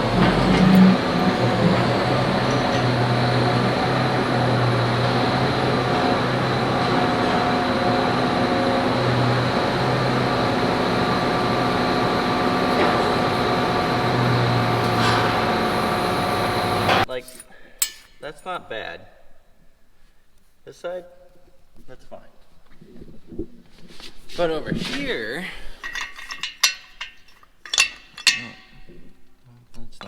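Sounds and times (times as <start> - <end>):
engine running: 0.0 - 17.1.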